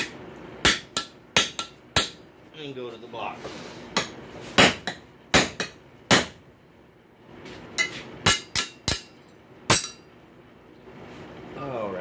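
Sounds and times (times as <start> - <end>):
hammer striking metal punch: 0.0 - 2.2, 4.0 - 6.4, 7.8 - 10.1.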